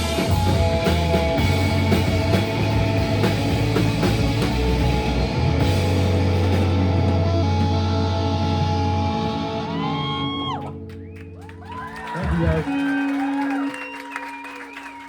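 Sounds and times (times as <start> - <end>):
drum kit: 0.0 - 10.3
held guitar chord with bass: 0.0 - 11.2
rock band playing: 0.0 - 14.0.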